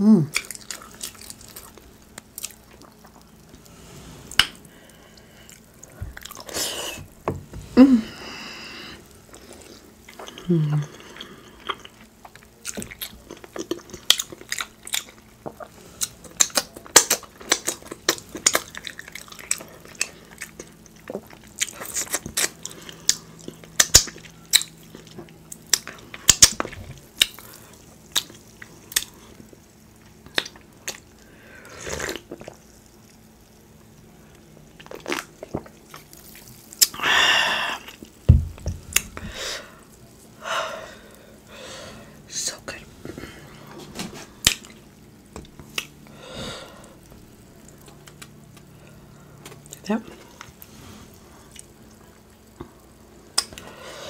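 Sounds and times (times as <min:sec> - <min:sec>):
wet chewing and smacking: 0:00.3 - 0:03.7, 0:05.4 - 0:07.2, 0:09.3 - 0:31.2, 0:34.3 - 0:37.0, 0:44.4 - 0:46.1, 0:47.0 - 0:50.6
low thump: 0:38.3 - 0:38.9.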